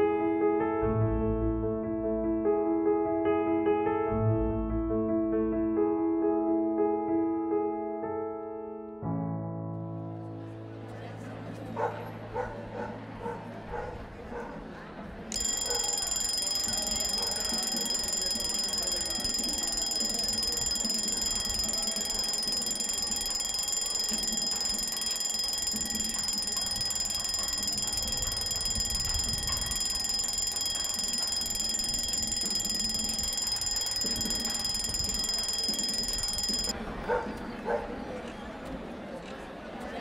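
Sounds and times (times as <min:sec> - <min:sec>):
alarm clock bells ringing: 0:15.3 - 0:36.7.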